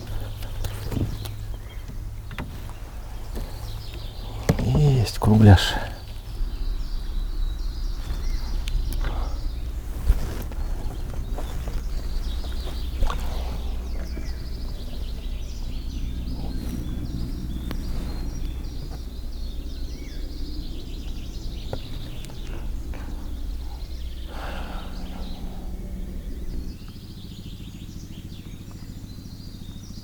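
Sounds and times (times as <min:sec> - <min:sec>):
small birds chirping: 0:00.0 - 0:30.0
steady low rumble: 0:00.0 - 0:30.0.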